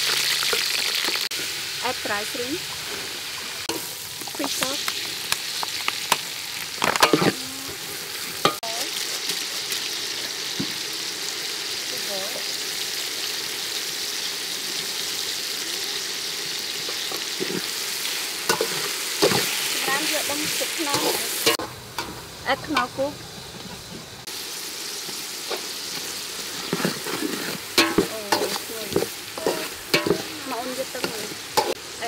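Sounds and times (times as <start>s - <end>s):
food sizzling in hot oil: 0.0s - 32.0s
metal ladle scraping a pot: 26.5s - 30.4s.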